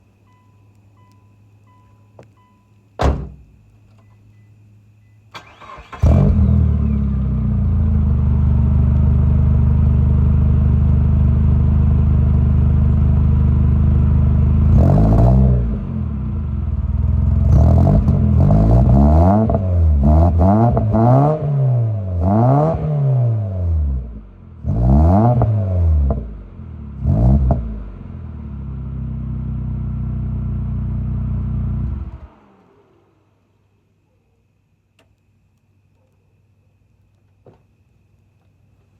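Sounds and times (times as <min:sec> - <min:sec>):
car engine starting and revving: 0:05.4 - 0:33.4.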